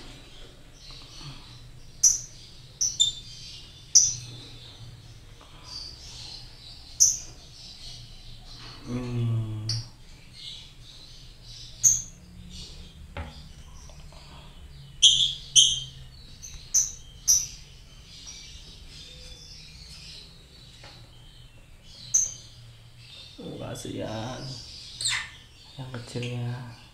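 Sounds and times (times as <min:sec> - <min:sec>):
lovebirds twittering: 0:00.0 - 0:26.9
shrill bird chirps: 0:00.4 - 0:04.8, 0:14.7 - 0:26.3.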